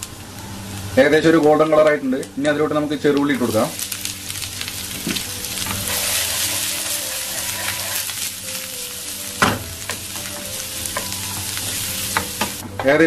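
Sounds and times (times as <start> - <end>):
shallots sizzling in oil: 0.0 - 13.0
wooden spatula stirring: 5.8 - 8.3.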